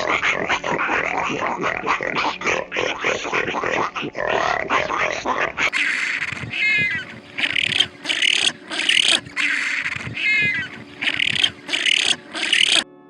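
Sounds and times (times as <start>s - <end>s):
animal harsh call bursts: 2.7s - 12.9s.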